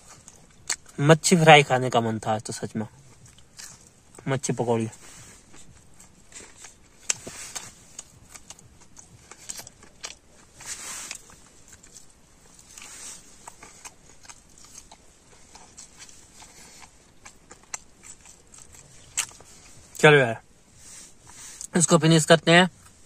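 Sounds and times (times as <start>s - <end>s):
crunching fried food: 2.2s - 20.1s.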